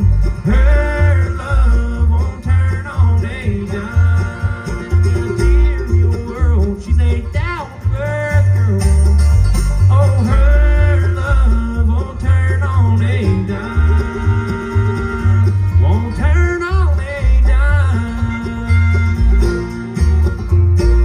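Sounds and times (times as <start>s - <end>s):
bluegrass band playing: 0.0s - 21.0s.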